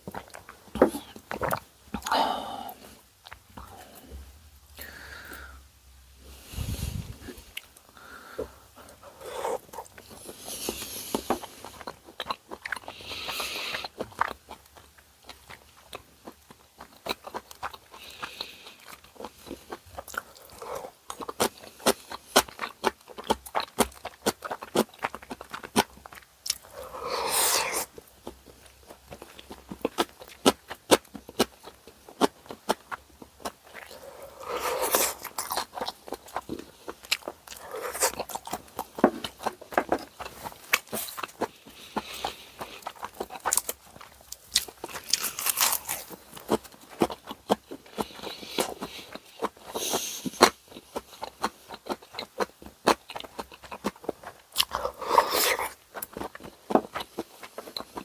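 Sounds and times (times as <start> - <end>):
crunchy bites: 32.2 - 49.7.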